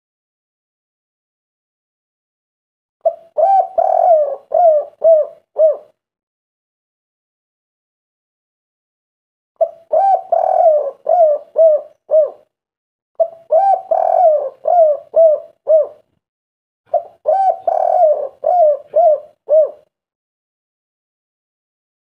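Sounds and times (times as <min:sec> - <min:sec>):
dove cooing: 0:03.0 - 0:06.0, 0:09.6 - 0:12.5, 0:13.2 - 0:16.1, 0:16.9 - 0:19.9.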